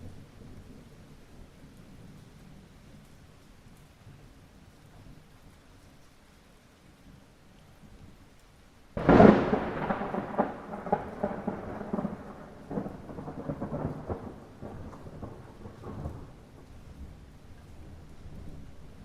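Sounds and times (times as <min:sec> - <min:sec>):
light rain: 0:00.0 - 0:19.0
thunderclap: 0:09.0 - 0:16.7.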